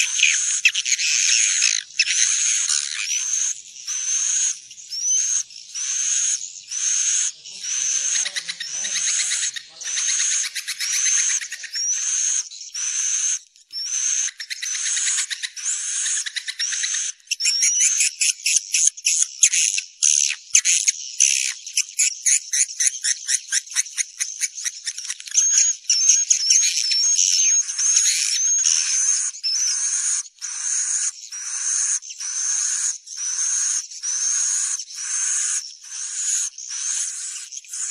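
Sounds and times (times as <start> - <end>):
fast chittering trills: 0.0 - 13.3.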